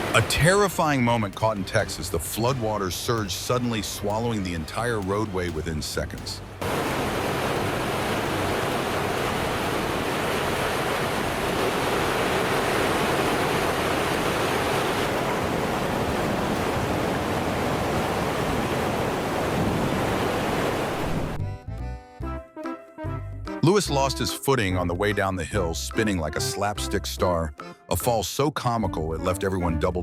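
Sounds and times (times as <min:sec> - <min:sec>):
floodwater rushing: 0:00.0 - 0:21.4.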